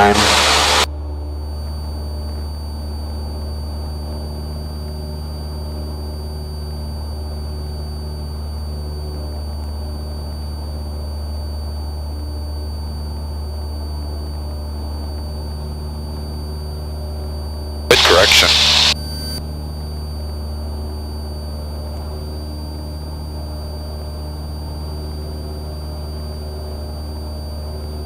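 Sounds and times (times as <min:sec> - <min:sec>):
propeller plane engine drone: 0:00.0 - 0:28.0
faint high whine: 0:17.9 - 0:19.4.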